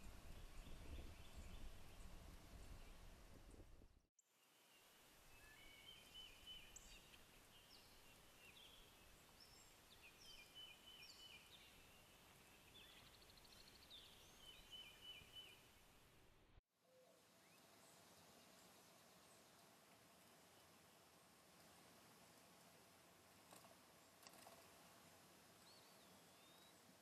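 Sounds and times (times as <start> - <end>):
soft outdoor hiss: 0.0 - 27.0
songbirds chirping: 4.4 - 21.4, 25.5 - 27.0.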